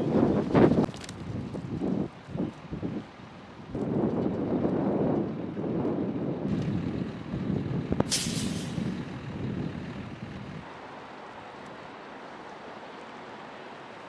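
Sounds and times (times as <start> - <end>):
wind buffeting microphone: 0.0 - 10.7
short sharp hiss: 8.1 - 8.9.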